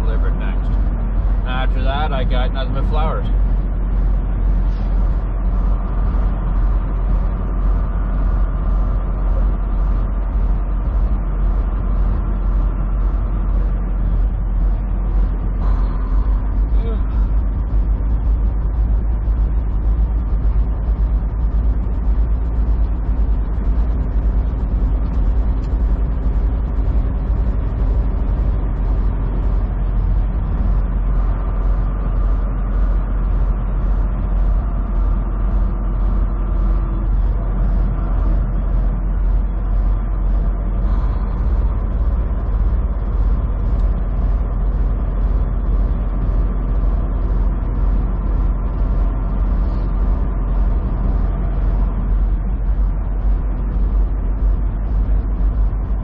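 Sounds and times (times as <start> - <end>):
diesel engine rumble: 0.0 - 56.0
road and tyre noise: 0.0 - 56.0.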